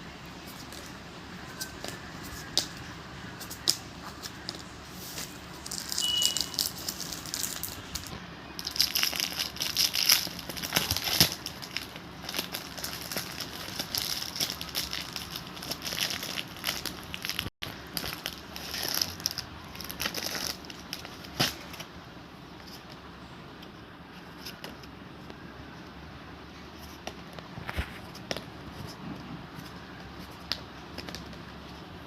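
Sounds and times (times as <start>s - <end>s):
packaging crinkling: 5.6s - 21.8s.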